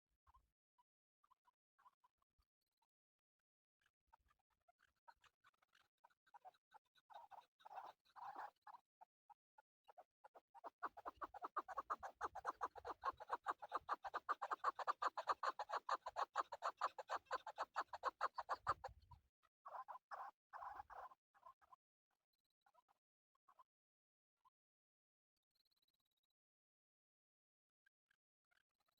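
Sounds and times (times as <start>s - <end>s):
partridge calling: 10.6s - 18.9s.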